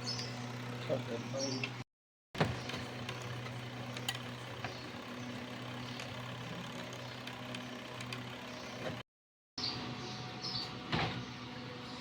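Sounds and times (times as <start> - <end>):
washing machine motor humming: 2.4 - 9.0.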